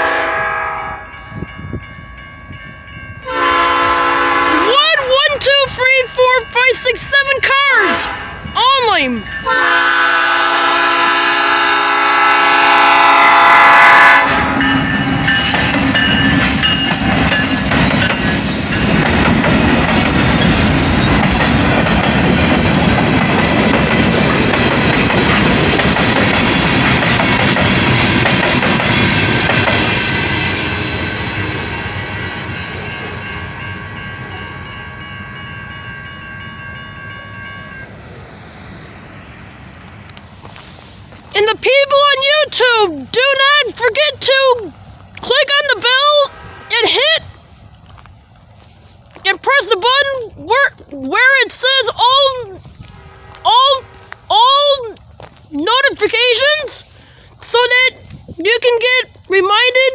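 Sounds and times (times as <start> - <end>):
train horn: 0.0 - 1.5, 3.2 - 5.2, 7.8 - 8.5, 9.4 - 16.8, 46.0 - 47.3, 52.7 - 54.3
freight cars rumbling over rails: 0.0 - 59.9.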